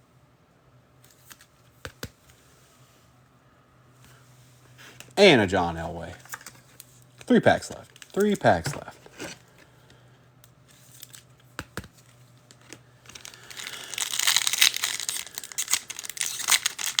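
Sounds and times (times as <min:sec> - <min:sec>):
foil pack tearing and crinkling: 0:12.0 - 0:17.0.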